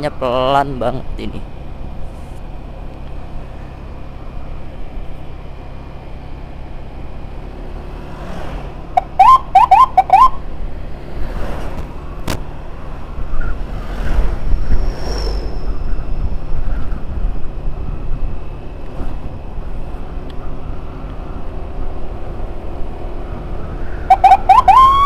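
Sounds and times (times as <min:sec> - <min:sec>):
engine and road hum: 0:00.0 - 0:25.0
electronic siren chirps: 0:09.0 - 0:10.4, 0:24.1 - 0:25.0.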